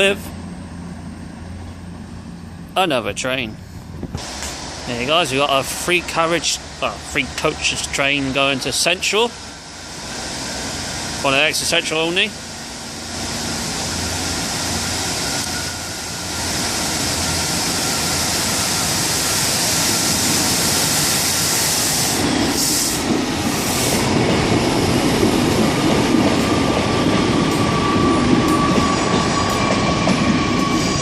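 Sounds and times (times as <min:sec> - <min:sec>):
diesel train engine: 0:00.0 - 0:31.0
short air hisses: 0:19.2 - 0:24.1.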